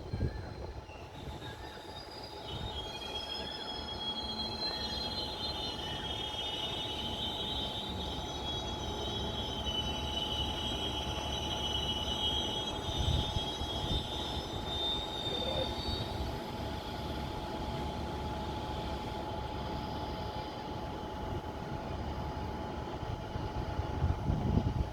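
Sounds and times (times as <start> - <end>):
high-pitched squeal: 0.0 - 16.3
train rumbling past: 0.0 - 24.9.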